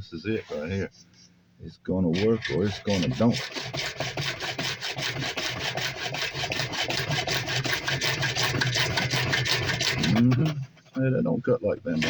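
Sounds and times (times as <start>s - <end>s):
saw rasping through plastic pipe: 2.1s - 11.0s.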